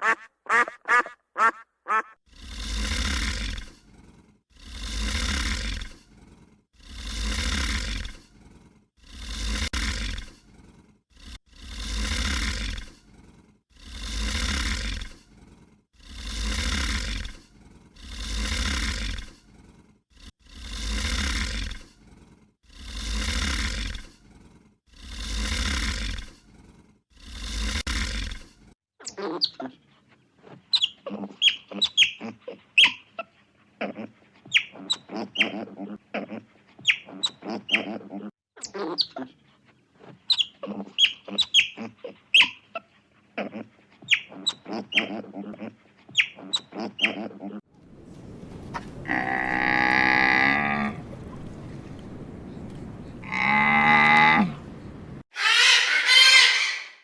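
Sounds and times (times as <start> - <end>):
birds chirping: 0.0 - 2.2, 50.8 - 57.0
farm animal rasping calls: 0.0 - 2.2, 49.0 - 51.2, 53.2 - 57.0.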